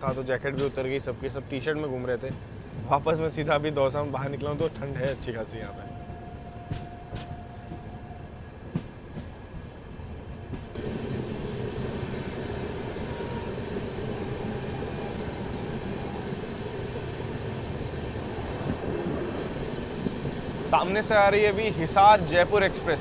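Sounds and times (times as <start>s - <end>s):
train wheels rumbling on rail: 0.0s - 23.0s
wheel squeal: 16.0s - 17.0s.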